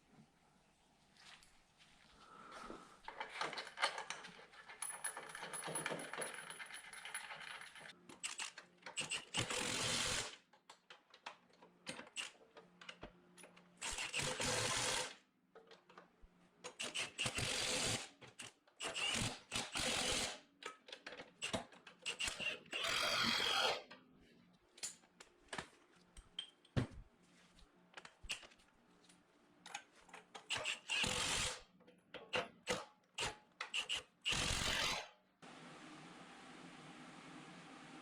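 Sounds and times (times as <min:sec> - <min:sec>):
metal bolts clinking: 0:03.1 - 0:07.9
power tool driving bolts: 0:08.2 - 0:10.4, 0:13.8 - 0:15.2, 0:16.7 - 0:20.4, 0:21.4 - 0:23.9, 0:30.4 - 0:31.6, 0:32.2 - 0:35.1.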